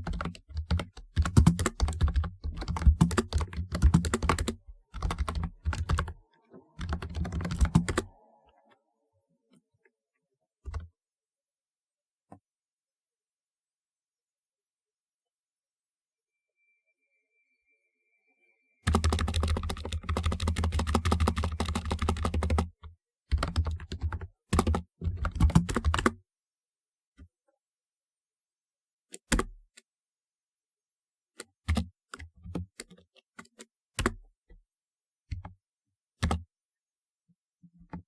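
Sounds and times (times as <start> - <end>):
typewriter-style keyboard typing: 0.0 - 6.2, 6.8 - 8.1, 18.9 - 26.1.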